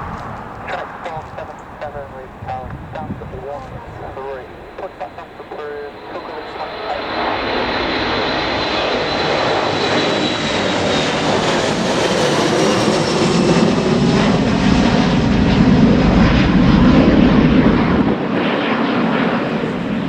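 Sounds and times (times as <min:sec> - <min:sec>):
airplane engines passing: 0:00.0 - 0:20.0
high engine whine: 0:00.0 - 0:20.0.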